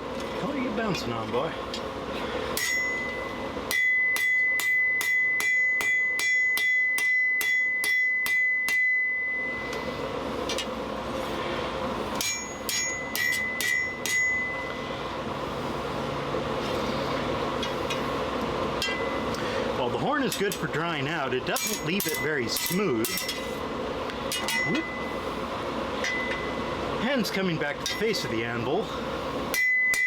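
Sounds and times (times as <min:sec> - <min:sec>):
hammer striking steel on anvil: 0:02.5 - 0:09.8, 0:12.1 - 0:14.8, 0:18.8 - 0:19.3, 0:21.5 - 0:23.5, 0:24.3 - 0:25.1, 0:26.0 - 0:26.7, 0:27.8 - 0:28.2, 0:29.5 - 0:30.0.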